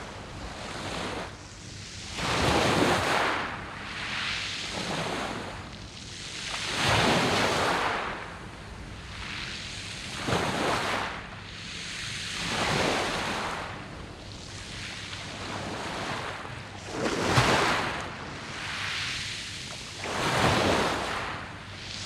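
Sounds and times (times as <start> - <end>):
surf washing up a pebble beach: 2.1 - 5.4, 6.3 - 8.3, 10.1 - 11.3, 11.9 - 22.0.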